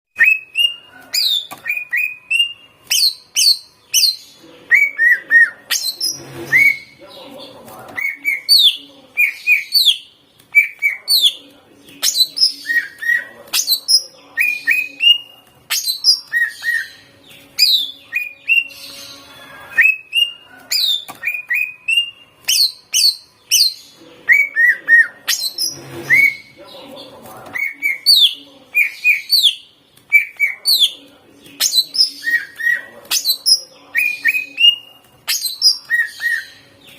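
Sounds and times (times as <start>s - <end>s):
bird singing whistled notes: 0.2s - 7.0s, 12.0s - 26.5s.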